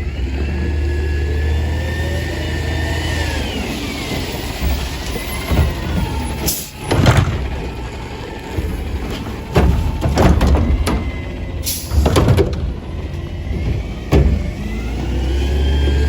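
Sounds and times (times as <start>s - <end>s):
diesel engine running: 0.0s - 16.0s
hydraulic whine: 0.0s - 16.0s
metal clanks: 4.4s - 15.3s.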